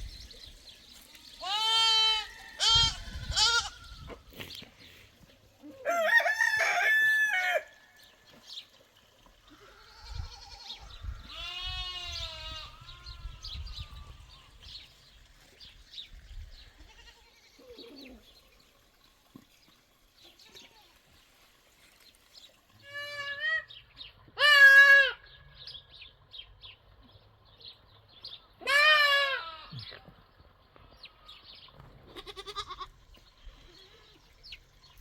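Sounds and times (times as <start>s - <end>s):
rooster crowing: 5.8s - 7.8s.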